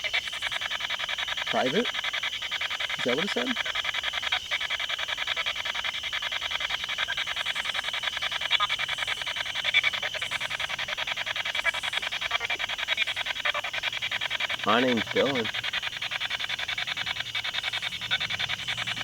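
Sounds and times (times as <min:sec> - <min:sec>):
chopped radio static: 0:01.2 - 0:03.6, 0:08.4 - 0:19.0.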